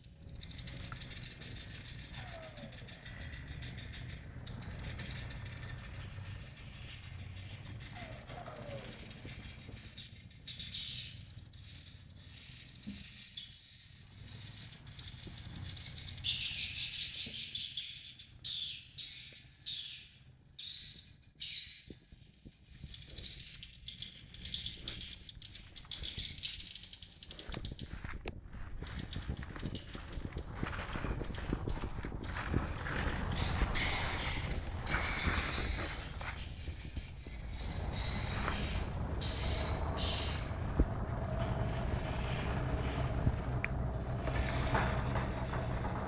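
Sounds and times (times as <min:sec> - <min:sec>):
swiftlets twittering: 0:28.8 - 0:45.8.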